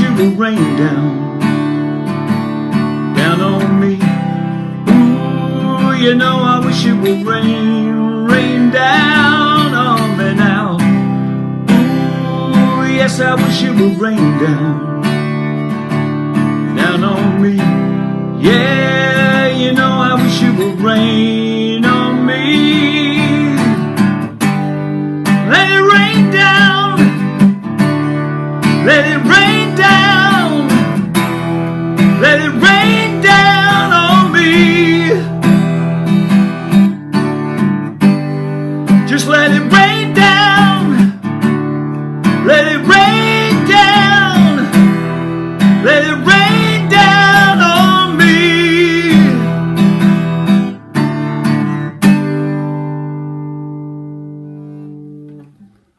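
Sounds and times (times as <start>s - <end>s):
person singing wordlessly: 0.0s - 1.4s, 3.2s - 11.1s, 11.7s - 15.0s, 16.6s - 24.0s, 25.3s - 27.4s, 28.6s - 31.3s, 31.9s - 35.4s, 38.9s - 41.3s, 42.2s - 49.7s
acoustic guitar strumming: 0.0s - 55.9s.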